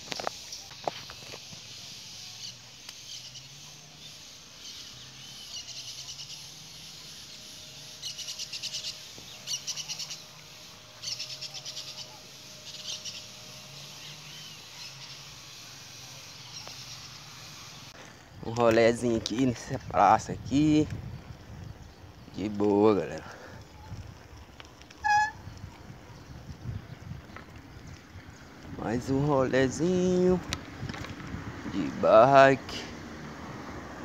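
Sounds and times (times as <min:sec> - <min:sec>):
bird rattling trills: 0:00.2 - 0:17.9.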